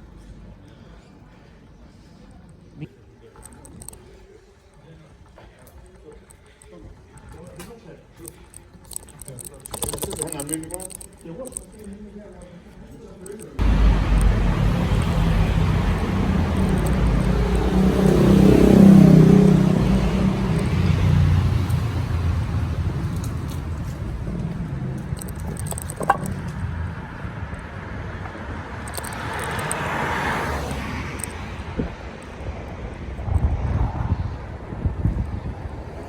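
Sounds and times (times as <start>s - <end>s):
motor vehicle engine passing: 13.6s - 34.8s
road rumble: 13.6s - 36.0s
wind on microphone: 31.6s - 36.0s.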